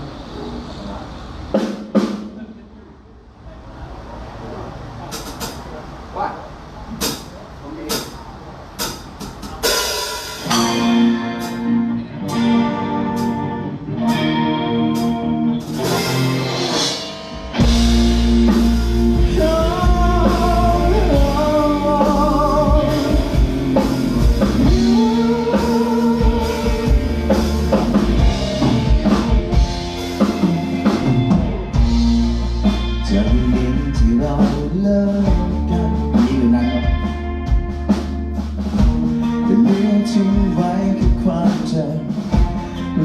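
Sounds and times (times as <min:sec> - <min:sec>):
live band playing: 0:01.4 - 0:02.5, 0:06.8 - 0:43.0
repeated chords: 0:09.0 - 0:43.0
melodic lead line: 0:10.4 - 0:43.0.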